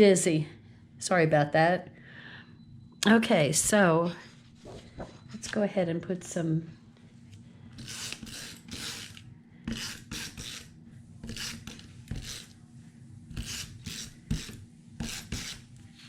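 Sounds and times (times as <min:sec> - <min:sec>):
paper rubbing on table: 0:07.8 - 0:12.5, 0:13.3 - 0:15.7.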